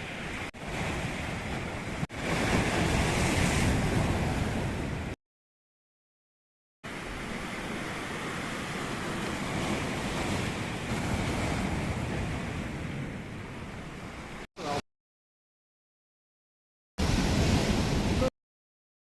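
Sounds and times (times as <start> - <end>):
waves washing on shore: 0.0 - 5.2, 6.9 - 14.8, 17.0 - 18.3
wind on microphone: 0.0 - 5.2.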